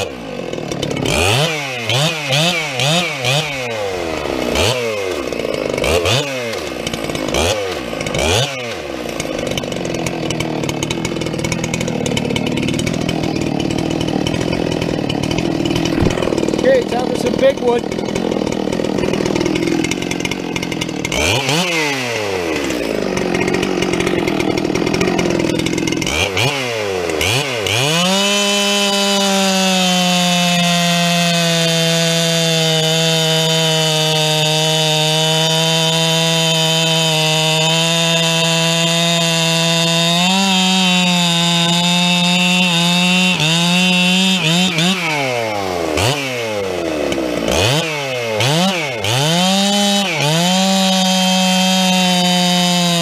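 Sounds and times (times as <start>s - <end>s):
chainsaw engine revving: 0.0s - 53.0s.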